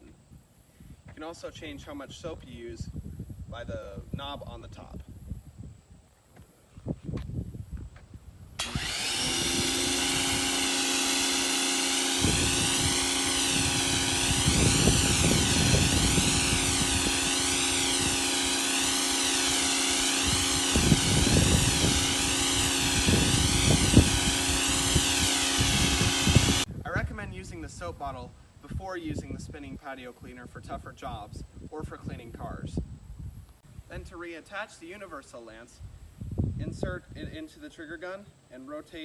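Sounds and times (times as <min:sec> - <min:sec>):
pressure washer jet hissing: 0:08.6 - 0:26.7
pump and motor hum: 0:08.6 - 0:26.7.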